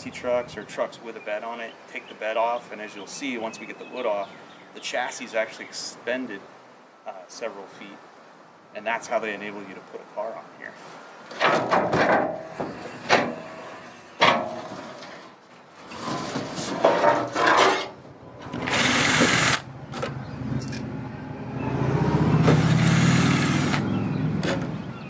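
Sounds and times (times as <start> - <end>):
sharp knocks: 11.4 - 13.5, 24.4 - 24.8
power drill motor: 18.5 - 19.6, 22.4 - 23.8.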